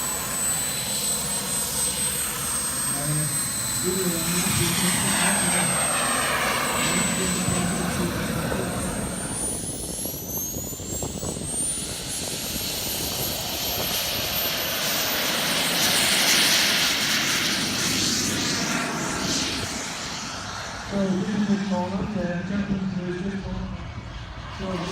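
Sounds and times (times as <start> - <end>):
jet rushing noise: 0.0 - 24.9
model jet turbine whine: 0.0 - 24.9.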